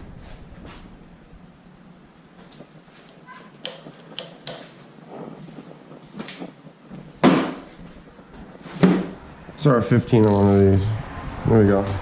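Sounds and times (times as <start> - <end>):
metal hand tools clinking: 10.1 - 10.8.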